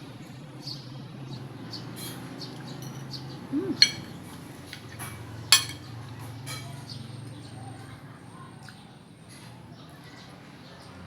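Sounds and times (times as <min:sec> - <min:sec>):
tableware clinking: 0:03.7 - 0:04.4, 0:05.5 - 0:06.8.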